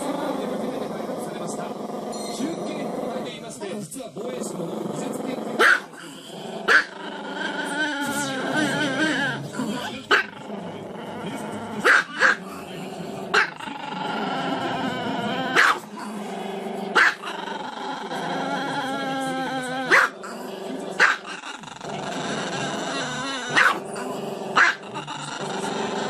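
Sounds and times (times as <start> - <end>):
dog yipping: 15.6 - 15.8, 19.9 - 20.1, 23.5 - 23.8.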